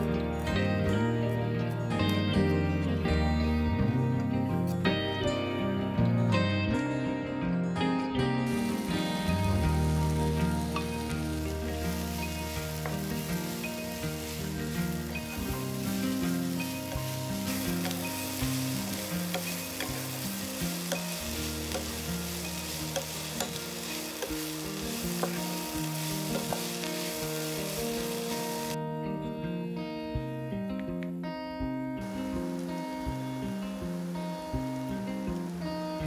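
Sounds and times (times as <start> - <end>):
soft background music: 0.0 - 36.0
food sizzling in a pan: 8.5 - 28.8, 32.0 - 36.0.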